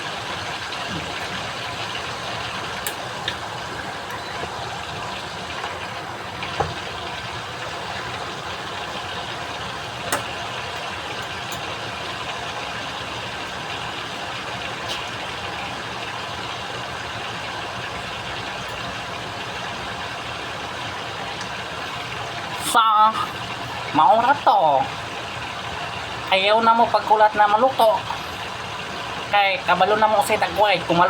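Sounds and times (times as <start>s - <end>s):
chicken sizzling in hot oil: 0.0s - 31.0s
oil popping: 0.1s - 22.5s.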